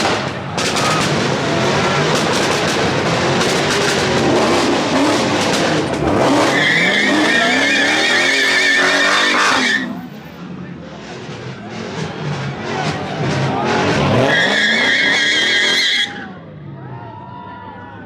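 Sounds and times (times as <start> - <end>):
car engine revving: 0.0 - 16.2
high wavering tyre squeal: 6.1 - 10.2, 13.4 - 16.5.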